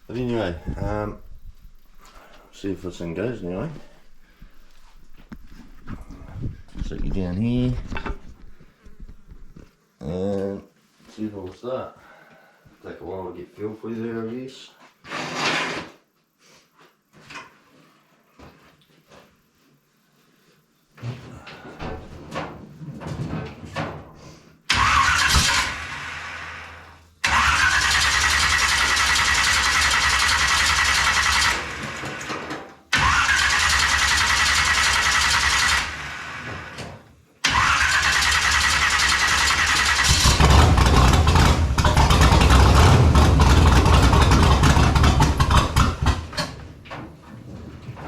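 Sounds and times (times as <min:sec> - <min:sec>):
starter motor whining: 0:24.7 - 0:32.3, 0:32.9 - 0:36.8, 0:37.4 - 0:46.6
engine cranking on starter: 0:24.7 - 0:46.7
engine running: 0:37.4 - 0:46.6.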